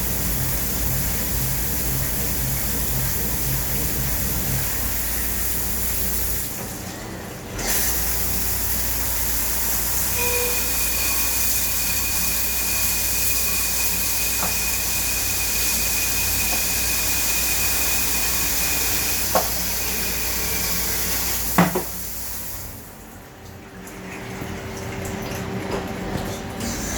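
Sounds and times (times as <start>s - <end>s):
coolant hissing: 0.0s - 23.4s
thin high whine: 10.0s - 20.7s.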